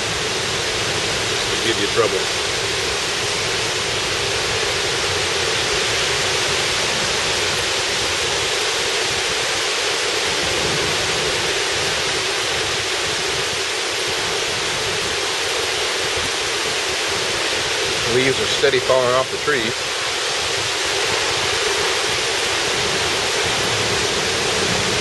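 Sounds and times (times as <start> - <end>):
torrential rain hissing: 0.0 - 25.0.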